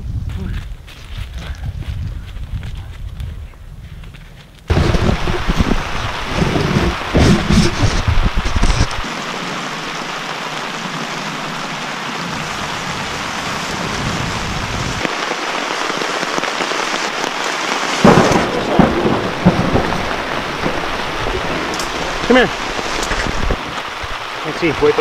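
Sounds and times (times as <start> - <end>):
low loud thumps: 4.7 - 9.0
heavy rain on a tarp: 4.7 - 25.0.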